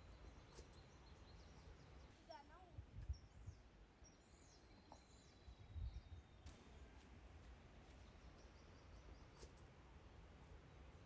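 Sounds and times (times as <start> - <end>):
small birds chirping: 0.0 - 6.9.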